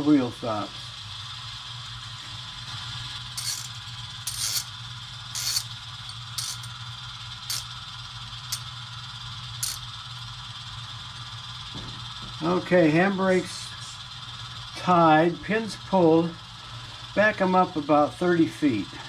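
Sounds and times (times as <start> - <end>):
steady low hum: 0.5 - 12.3
short hissing tick: 3.4 - 4.7, 5.4 - 5.7, 6.4 - 6.7, 7.5 - 7.7.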